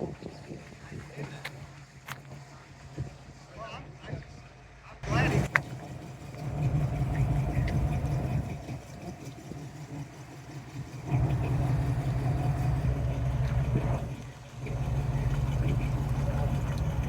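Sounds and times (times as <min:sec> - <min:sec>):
car engine rumbling: 0:00.0 - 0:17.0.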